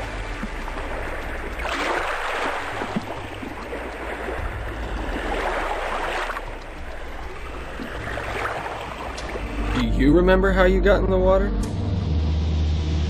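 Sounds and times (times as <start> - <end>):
sea water washing in swells: 0.0 - 9.9
steady low rumble: 0.0 - 13.0.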